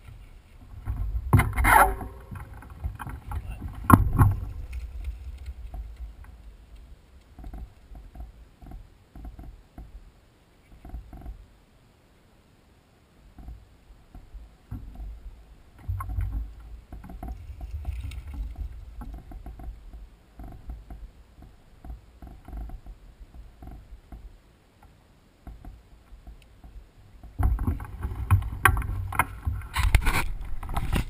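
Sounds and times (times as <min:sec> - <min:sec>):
wind rumble on microphone: 0:00.0 - 0:10.0, 0:25.4 - 0:31.0
bike rattling knocks: 0:00.8 - 0:06.2.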